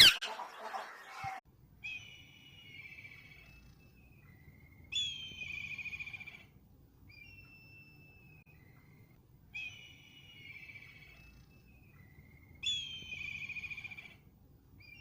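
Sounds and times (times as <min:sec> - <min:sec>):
bird whistled calls: 0:01.8 - 0:06.4, 0:07.1 - 0:09.0, 0:09.6 - 0:14.2.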